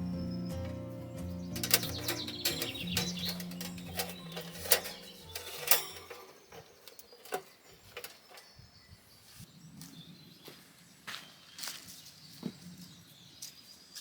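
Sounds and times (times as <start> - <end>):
background music: 0.0 - 6.0
sharp clicks and knocks: 0.5 - 8.5.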